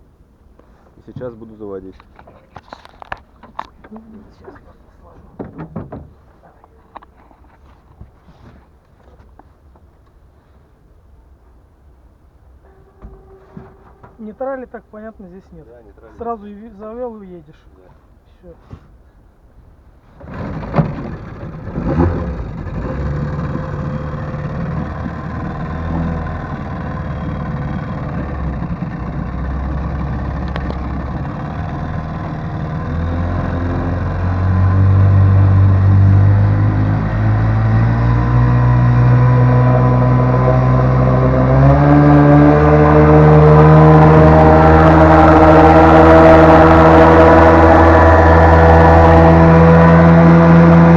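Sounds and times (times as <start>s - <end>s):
sharp knocks: 5.3s - 6.2s
outboard motor running: 20.2s - 50.9s.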